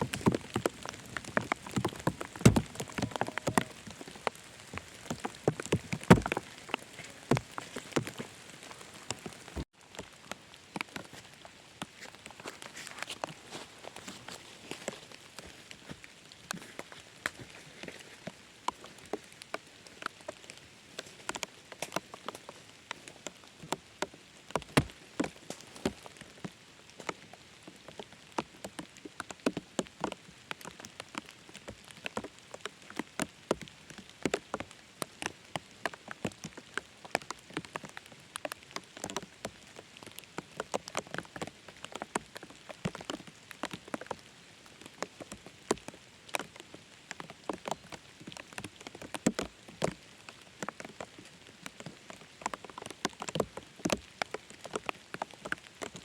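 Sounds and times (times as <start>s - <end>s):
raindrops striking close by: 0.0s - 56.0s
steady rain hiss: 0.0s - 56.0s.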